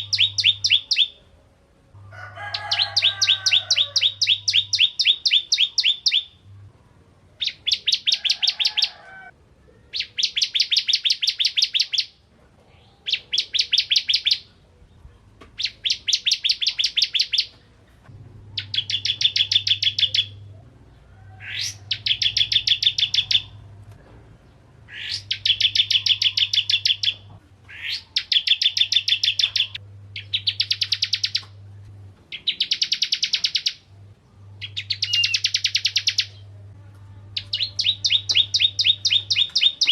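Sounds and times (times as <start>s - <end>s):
bird singing rattling trills: 0.0s - 1.2s, 2.5s - 6.4s, 15.6s - 17.5s, 18.5s - 20.5s, 21.4s - 23.6s, 24.9s - 31.5s, 32.3s - 33.9s, 34.6s - 36.4s, 37.4s - 39.9s.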